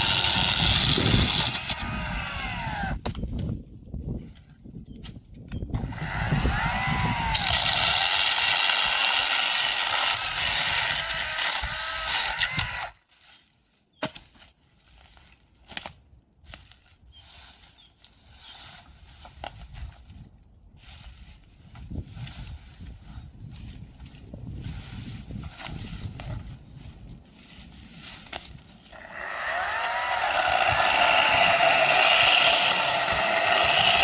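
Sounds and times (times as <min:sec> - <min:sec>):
hand saw rasping through branch: 0:00.0 - 0:03.0, 0:05.8 - 0:13.0, 0:27.6 - 0:34.0.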